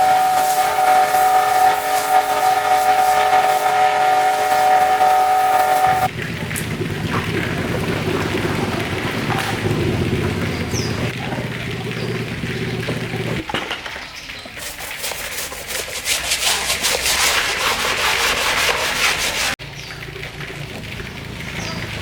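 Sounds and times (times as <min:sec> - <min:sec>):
low machine hum: 0:00.0 - 0:13.4
rapid rhythmic rubbing: 0:00.0 - 0:13.4, 0:14.6 - 0:19.6.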